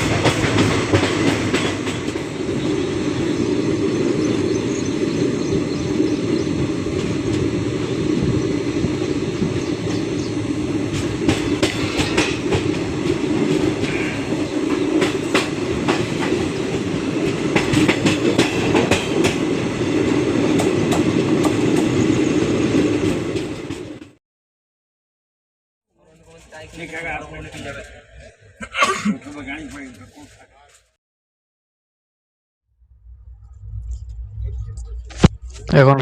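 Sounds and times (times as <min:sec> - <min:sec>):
train rumble: 0:00.0 - 0:24.2, 0:26.0 - 0:28.6
wheels clicking over rail joints: 0:10.8 - 0:19.5.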